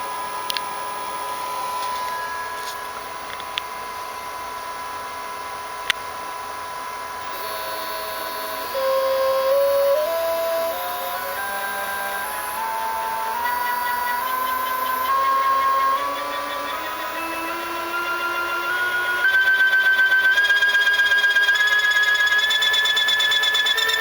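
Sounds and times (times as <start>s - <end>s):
stepper motor whine: 0.0s - 24.0s
stepped tone climbing in pitch: 7.3s - 24.0s.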